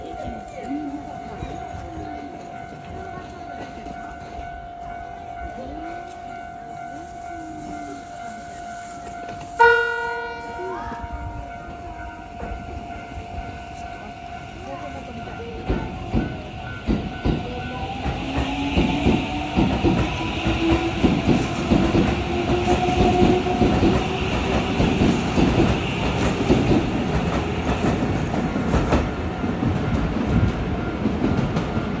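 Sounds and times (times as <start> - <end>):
steady high tone: 0.0 - 25.8
faint crowd chatter: 0.0 - 26.8
electric train running past: 0.0 - 32.0
train horn blast: 9.6 - 11.7, 20.2 - 24.4.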